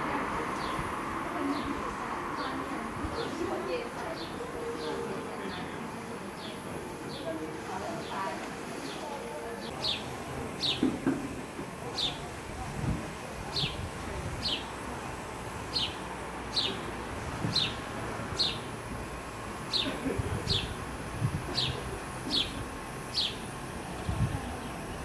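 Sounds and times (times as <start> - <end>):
bird chirping: 9.8 - 10.9, 21.6 - 23.4.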